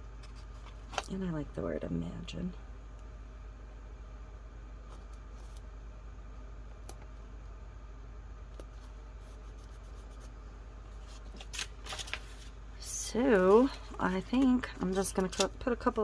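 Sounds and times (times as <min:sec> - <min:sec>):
steady low hum: 0:00.0 - 0:16.0
paper ticks and rustles: 0:11.2 - 0:12.4.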